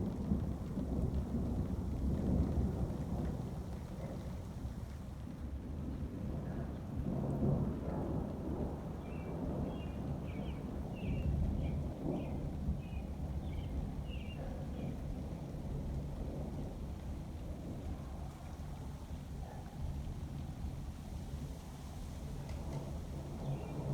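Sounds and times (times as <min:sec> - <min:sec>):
rolling thunder: 0:00.0 - 0:04.9
rain: 0:00.0 - 0:23.9.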